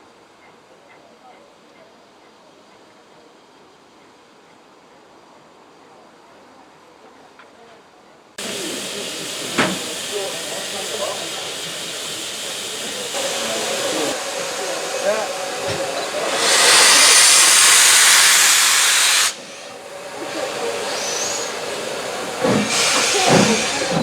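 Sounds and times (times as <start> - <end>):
loud burst of escaping steam: 8.4 - 24.0
steam locomotive hissing: 8.4 - 24.0.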